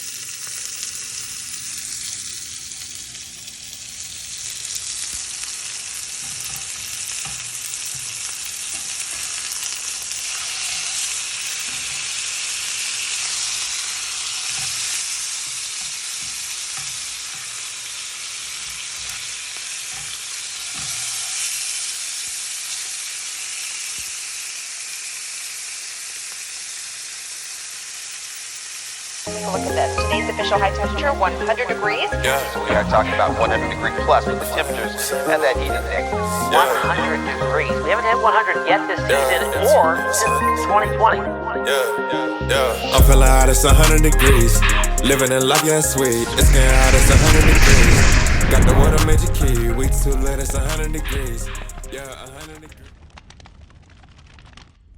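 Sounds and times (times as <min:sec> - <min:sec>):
chicken sizzling in a pan: 0:00.0 - 0:40.4.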